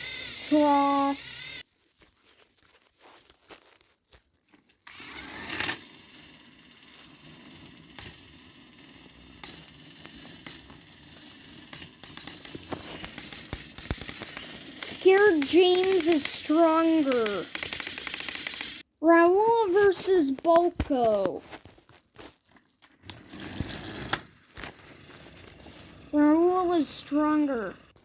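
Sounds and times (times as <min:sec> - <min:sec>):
toy train motor whir: 0:00.0 - 0:01.6, 0:04.8 - 0:18.8, 0:22.9 - 0:28.0
wheels and couplings clicking: 0:00.0 - 0:01.6, 0:04.9 - 0:18.8.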